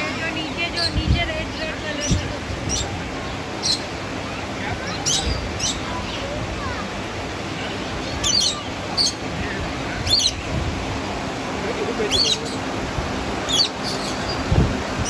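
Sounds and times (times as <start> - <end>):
small birds chirping: 0.0 - 15.0
steady background hiss: 0.0 - 15.0.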